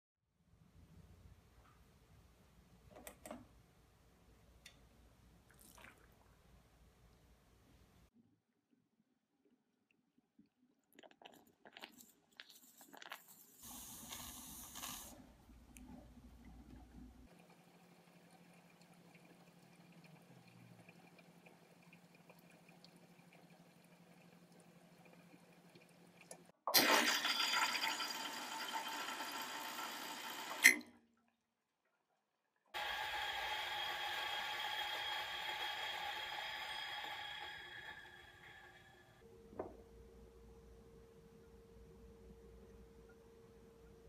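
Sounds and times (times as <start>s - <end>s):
espresso machine hiss: 13.6s - 15.2s, 32.8s - 39.1s
espresso machine pump humming: 26.8s - 30.7s, 32.8s - 39.2s.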